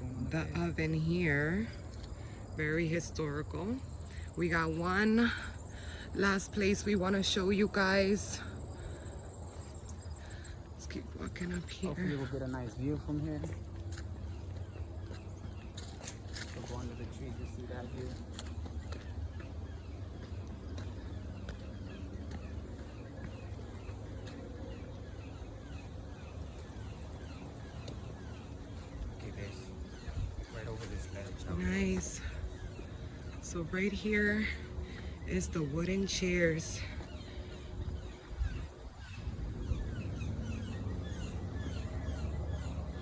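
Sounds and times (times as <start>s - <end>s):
steady low rumble: 0.0s - 43.0s
footsteps crunching on trail: 8.7s - 35.8s
wind rumble on microphone: 29.0s - 32.9s, 37.6s - 41.3s.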